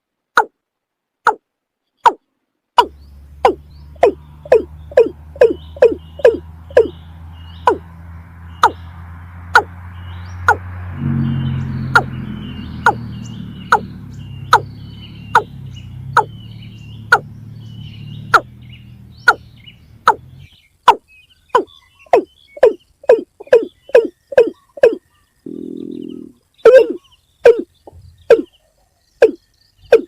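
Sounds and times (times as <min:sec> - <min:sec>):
low steady hum: 0:02.8 - 0:20.5.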